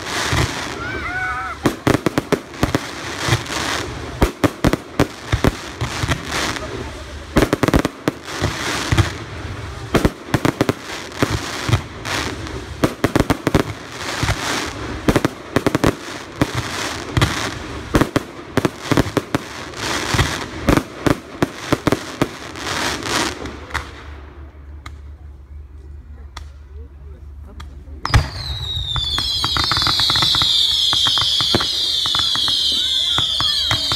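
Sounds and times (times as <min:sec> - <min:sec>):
fireworks bangs: 0:00.0 - 0:24.1, 0:28.0 - 0:33.9
fireworks crackling: 0:00.0 - 0:25.1, 0:27.2 - 0:33.9.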